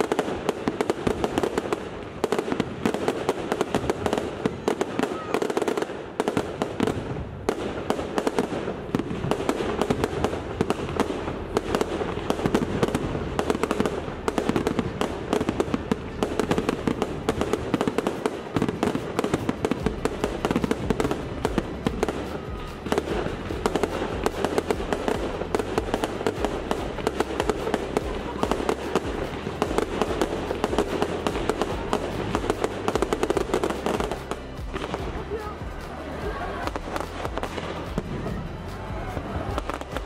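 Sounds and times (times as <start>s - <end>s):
fireworks bursting and crackling: 0.0s - 40.0s.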